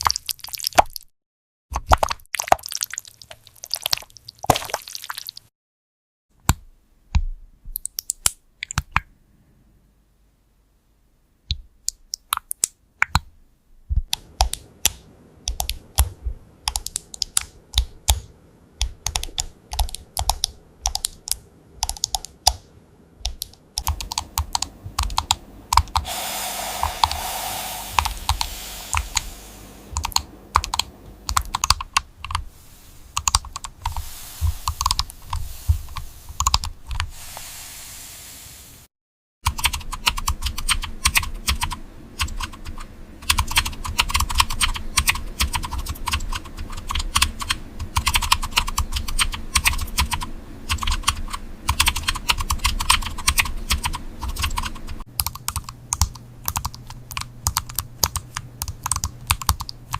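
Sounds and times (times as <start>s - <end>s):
typing on computer keyboard: 15.5s - 22.6s, 23.3s - 26.0s, 39.5s - 59.8s
hiss: 26.0s - 30.2s, 33.8s - 38.9s.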